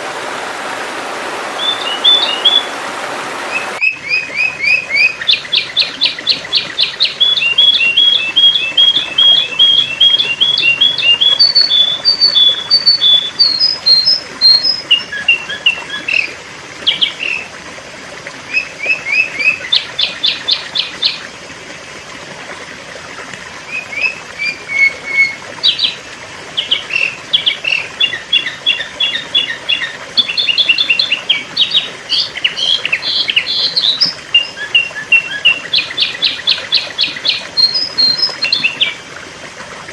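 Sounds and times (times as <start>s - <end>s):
bird chirping and trilling: 1.6s - 2.8s, 3.5s - 16.3s, 26.6s - 39.0s.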